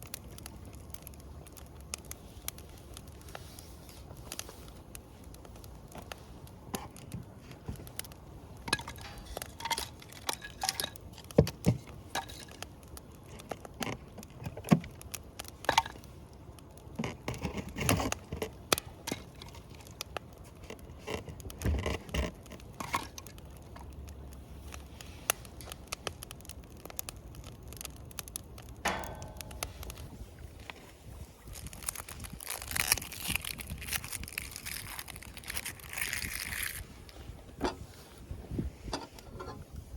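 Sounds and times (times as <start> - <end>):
rustle: 0.0 - 39.9
small objects clicking and clattering: 8.6 - 16.0, 31.5 - 36.8.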